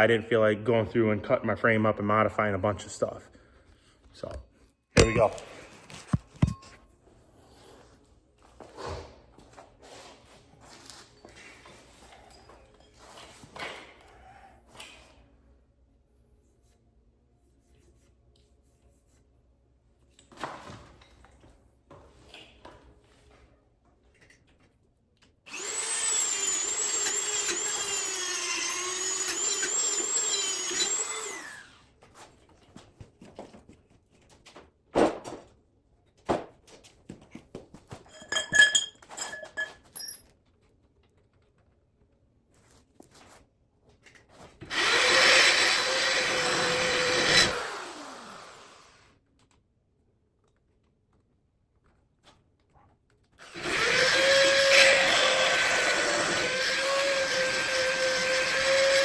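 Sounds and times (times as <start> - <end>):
tools clattering: 5.0 - 6.8, 38.0 - 40.3
power tool motor whining: 25.5 - 31.8, 44.7 - 48.9, 53.4 - 59.0.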